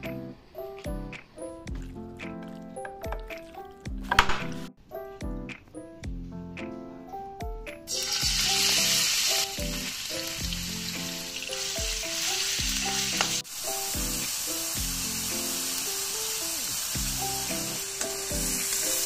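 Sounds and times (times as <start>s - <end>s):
background music with steady beat: 0.0s - 19.0s
pork sizzling in hot oil: 7.9s - 19.0s.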